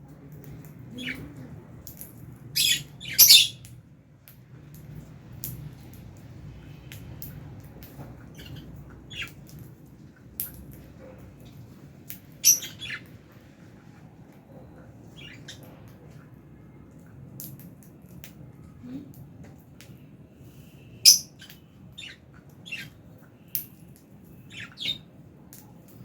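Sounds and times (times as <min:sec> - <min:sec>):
lovebirds chirping and squawking: 0:00.5 - 0:03.7, 0:08.2 - 0:09.7, 0:12.1 - 0:13.2, 0:15.1 - 0:15.8, 0:21.0 - 0:23.0, 0:24.4 - 0:25.1.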